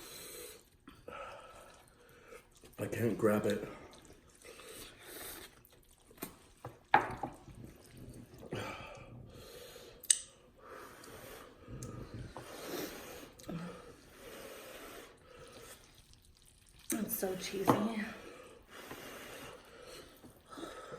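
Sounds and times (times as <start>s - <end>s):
slurping and chewing noodles: 0.0s - 20.9s
breathy mouth sounds: 7.4s - 17.0s.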